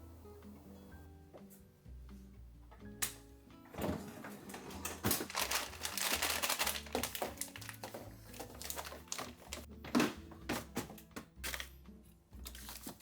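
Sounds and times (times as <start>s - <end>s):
crinkling and rustling: 3.7s - 11.7s, 12.4s - 13.0s.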